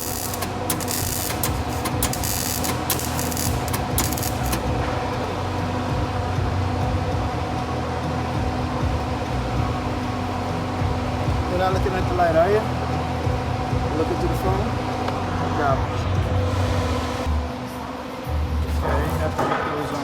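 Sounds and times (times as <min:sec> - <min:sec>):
welding arc crackling: 0:00.0 - 0:05.3
low machine hum: 0:00.0 - 0:19.4.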